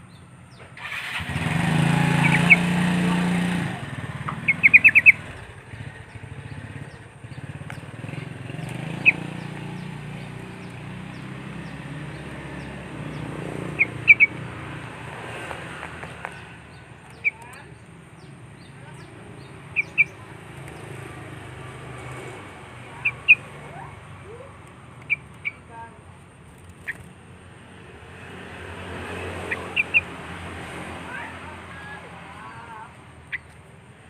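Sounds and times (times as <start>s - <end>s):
motorcycle passing: 0.0s - 34.0s
high bird chirps: 2.0s - 3.2s, 3.9s - 25.9s, 28.9s - 33.7s.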